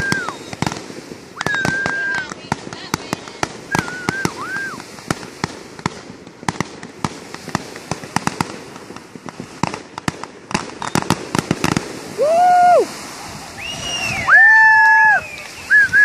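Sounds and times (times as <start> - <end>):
warbling firework whistle: 0.0 - 2.3, 3.7 - 5.0, 10.7 - 16.0
fireworks pops and bangs: 0.0 - 16.0.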